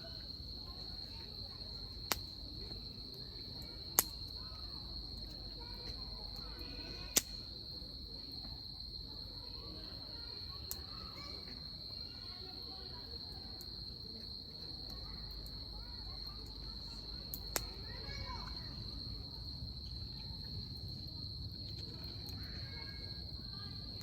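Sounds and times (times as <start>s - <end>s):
insects trilling: 0.0s - 24.0s
wood fire crackling: 0.1s - 7.6s, 13.2s - 23.3s
fire sharp pops: 2.0s - 2.4s, 3.7s - 4.3s, 6.9s - 7.5s, 17.3s - 17.9s.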